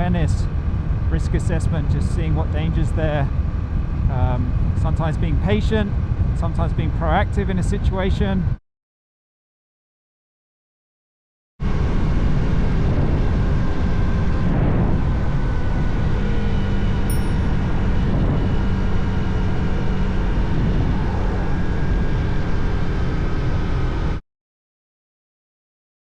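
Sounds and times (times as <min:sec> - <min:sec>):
heavy wind noise: 0:00.0 - 0:08.6, 0:11.6 - 0:24.2
wind and road noise: 0:00.0 - 0:08.6, 0:11.6 - 0:24.2
brief high beep: 0:17.1 - 0:17.6.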